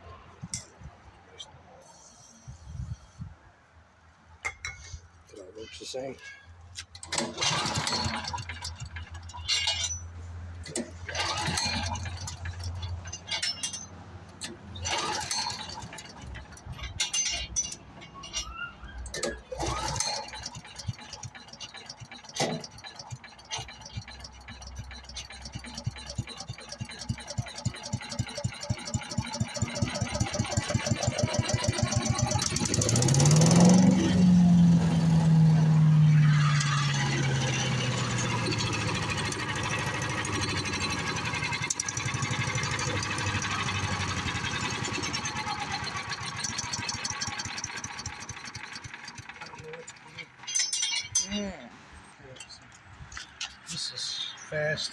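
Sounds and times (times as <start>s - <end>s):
clicks and rattles: 6.2s - 34.1s, 36.2s - 51.4s
small gasoline engine starting: 6.9s - 10.0s, 10.6s - 50.5s.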